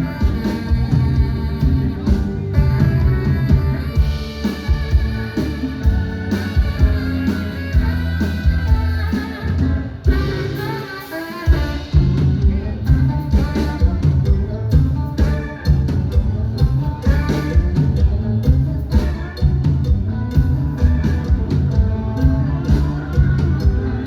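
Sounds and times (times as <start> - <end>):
drum kit: 0.0 - 24.0
electric guitar: 0.0 - 24.0
person singing: 20.6 - 24.0.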